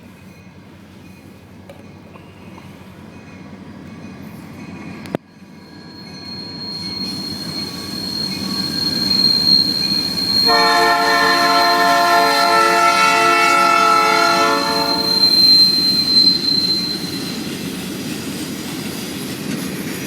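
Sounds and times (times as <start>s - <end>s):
freight train rumble: 0.0s - 20.0s
thin high squeal: 4.7s - 17.6s
locomotive air horn chord: 10.4s - 15.4s.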